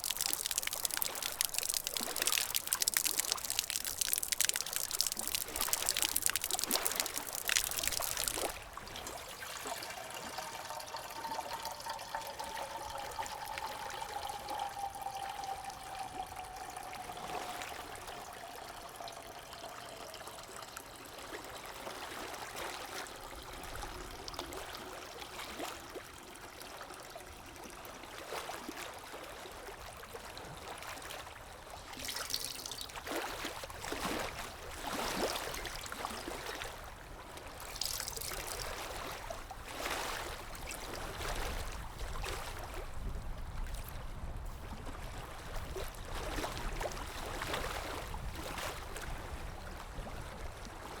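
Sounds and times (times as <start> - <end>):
water trickling: 0.0 - 27.5, 31.0 - 44.6
faint tone sliding down: 9.9 - 20.6.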